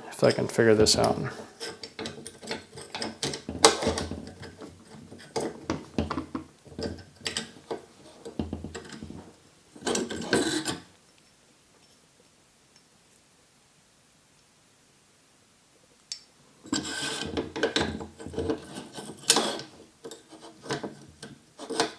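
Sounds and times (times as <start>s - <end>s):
metal clicks and rattles: 0.9s - 10.8s.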